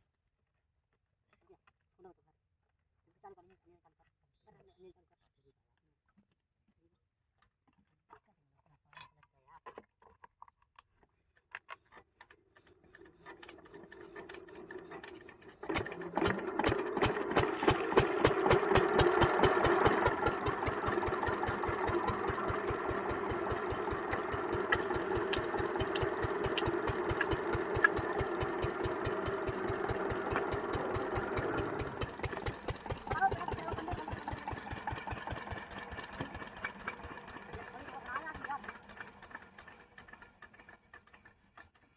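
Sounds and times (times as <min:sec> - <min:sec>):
diesel engine cranking whirr: 0:12.7 - 0:41.8
diesel engine running knock: 0:15.8 - 0:41.2.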